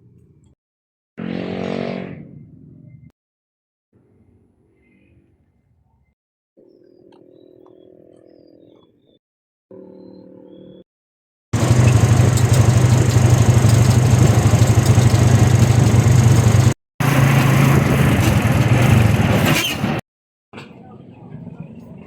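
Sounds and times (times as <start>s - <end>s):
vehicle engine running: 11.6s - 20.0s.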